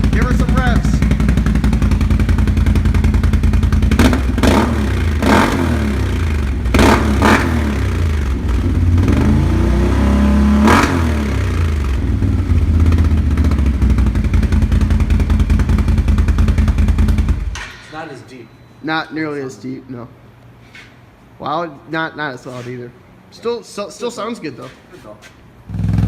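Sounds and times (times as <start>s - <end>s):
atv engine revving: 0.0s - 17.5s, 25.7s - 26.0s.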